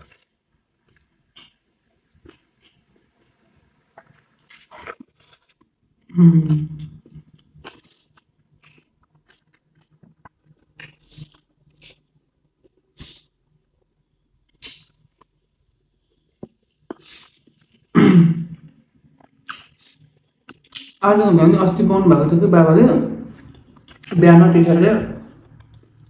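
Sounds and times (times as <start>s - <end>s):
person chewing and smacking: 2.2s - 3.3s, 4.0s - 5.7s, 6.5s - 13.3s, 14.4s - 15.4s, 16.1s - 17.9s, 18.6s - 21.0s, 23.3s - 24.2s, 25.3s - 26.0s.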